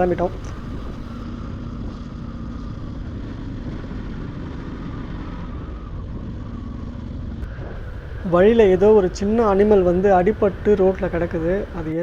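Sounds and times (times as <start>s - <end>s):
motorcycle engine running: 0.0s - 2.4s
wind rushing over microphone: 0.0s - 12.0s.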